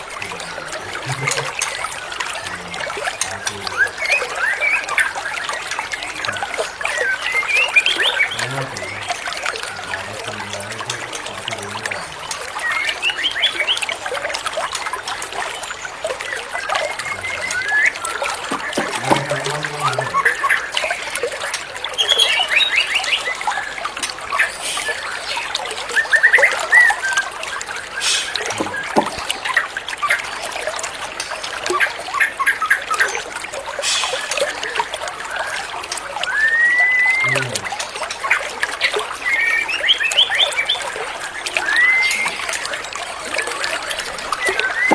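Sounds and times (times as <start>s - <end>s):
water trickling: 0.0s - 44.9s
bird singing whistles and trills: 0.4s - 10.3s, 12.2s - 14.0s, 15.6s - 30.2s, 35.3s - 44.9s.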